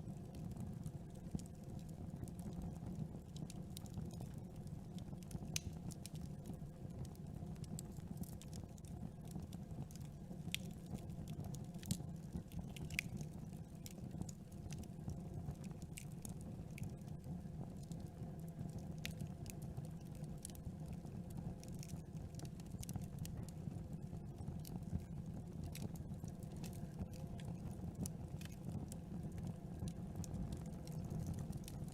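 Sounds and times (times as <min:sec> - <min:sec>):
fire crackling and popping: 0:00.0 - 0:31.9
campfire flames rushing: 0:01.1 - 0:31.9.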